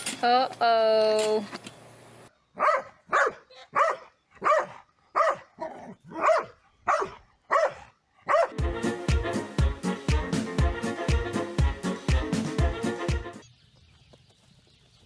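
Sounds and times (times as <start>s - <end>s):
dog barking: 2.6s - 8.6s.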